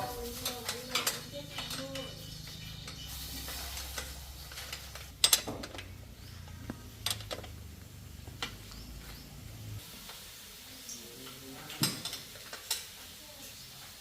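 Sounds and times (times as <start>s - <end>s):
metal tools clinking: 0.0s - 2.2s.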